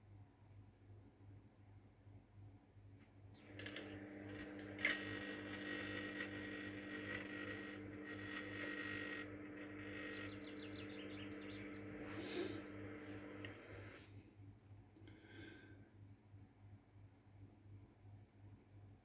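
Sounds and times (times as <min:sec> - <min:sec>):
microwave oven humming: 0:03.4 - 0:14.2
electrical arc buzzing and crackling: 0:03.5 - 0:13.9.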